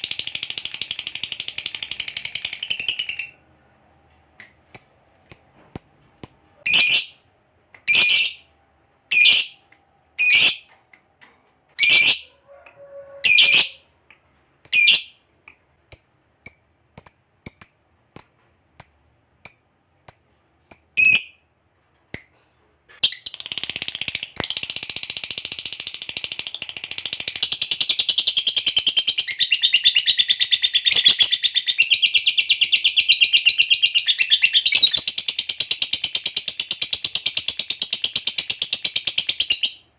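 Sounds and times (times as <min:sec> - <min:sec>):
lovebird chirping and trilling: 0:00.1 - 0:03.4, 0:04.7 - 0:07.2, 0:07.9 - 0:08.5, 0:09.1 - 0:09.6, 0:10.2 - 0:10.7, 0:11.8 - 0:12.2, 0:13.2 - 0:13.8, 0:14.6 - 0:21.4, 0:23.0 - 0:39.8.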